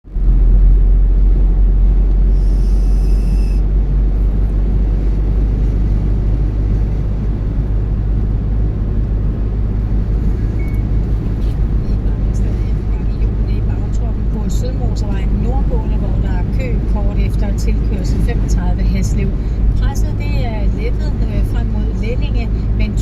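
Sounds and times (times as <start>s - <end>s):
car cabin road rumble: 0.0s - 23.0s
faint high tone: 2.3s - 3.6s.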